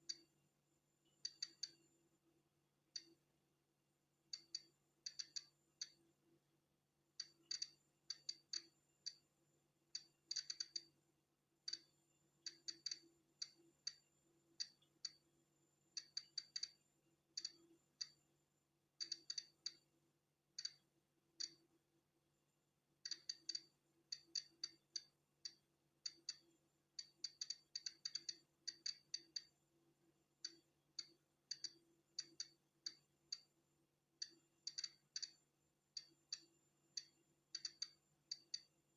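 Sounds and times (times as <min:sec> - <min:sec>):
faint steady hum: 0:00.0 - 0:38.9
geiger counter clicking: 0:01.2 - 0:01.8, 0:04.3 - 0:06.0, 0:07.2 - 0:09.2, 0:10.0 - 0:11.0, 0:11.7 - 0:15.2, 0:15.9 - 0:18.2, 0:19.0 - 0:19.9, 0:20.6 - 0:21.6, 0:23.0 - 0:29.6, 0:30.4 - 0:33.6, 0:34.2 - 0:38.7.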